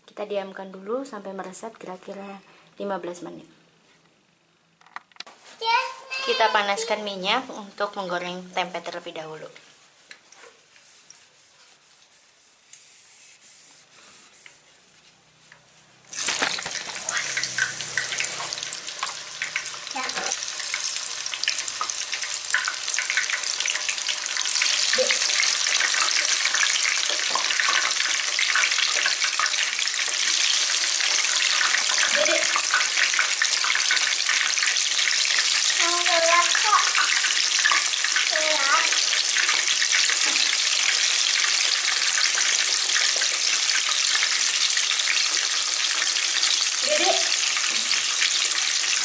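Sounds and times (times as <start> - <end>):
food deep-frying in oil: 16.0 - 49.0.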